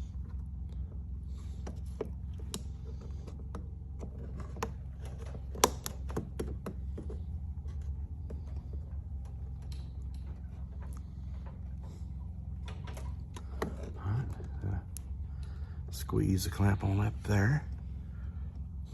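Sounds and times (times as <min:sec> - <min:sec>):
steady low hum: 0:00.0 - 0:18.9
clicks and knocks of parts handled: 0:01.6 - 0:15.5.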